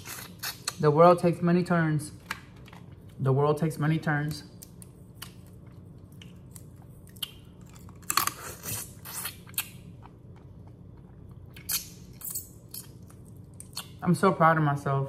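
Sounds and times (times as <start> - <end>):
chewing and crunching: 4.6 - 14.0.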